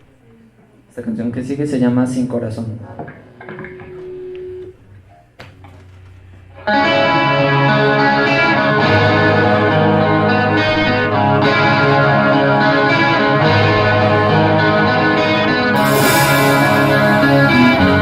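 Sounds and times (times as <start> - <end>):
distorted electric guitars: 6.6 - 18.0.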